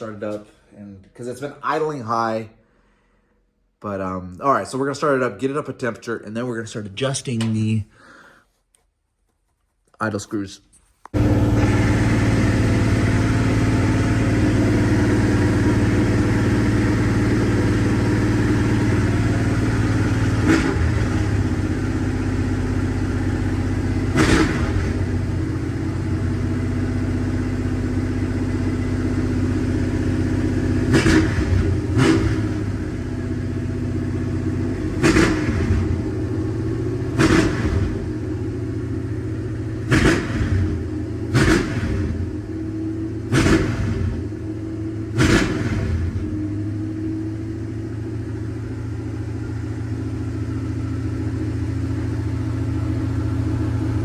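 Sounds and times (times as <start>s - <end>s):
car engine idling and revving: 11.1s - 54.0s.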